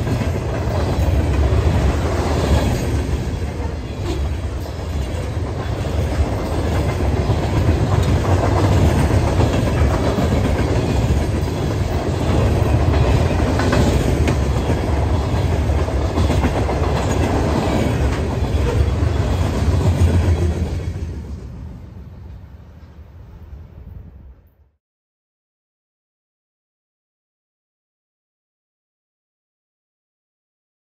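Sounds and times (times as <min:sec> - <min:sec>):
freight train wheels rumbling: 0:00.0 - 0:24.4.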